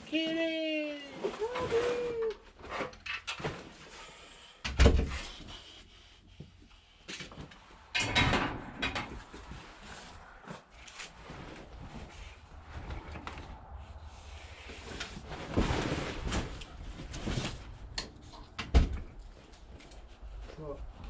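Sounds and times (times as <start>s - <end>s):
scraping and rustling handling: 0.1s - 4.0s.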